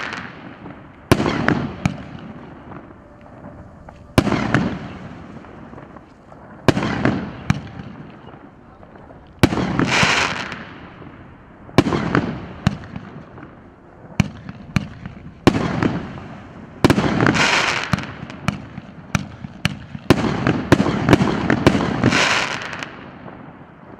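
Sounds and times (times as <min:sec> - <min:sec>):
firework launch shots: 0:00.0 - 0:08.4, 0:09.4 - 0:13.6
firework stars bursting and crackling: 0:00.0 - 0:23.9.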